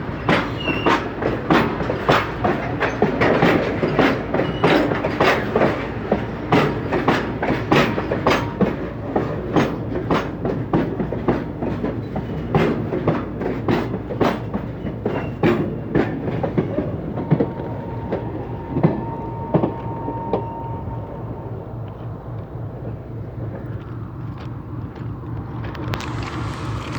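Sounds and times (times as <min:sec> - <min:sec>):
train wheels clickety-clack: 0:00.0 - 0:20.7
train rumble: 0:00.0 - 0:26.9.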